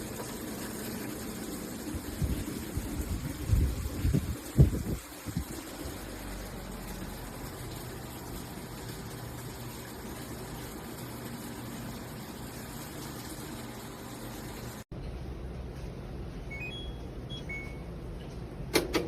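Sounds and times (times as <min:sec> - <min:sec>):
washing machine rushing water noise: 0:00.0 - 0:14.9
washing machine low hum: 0:00.0 - 0:19.0.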